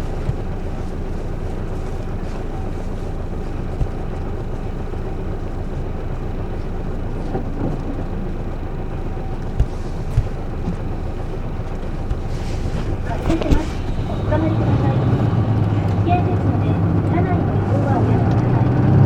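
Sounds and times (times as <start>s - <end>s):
bus diesel engine idling: 0.0s - 19.0s
short thumps: 7.2s - 16.2s.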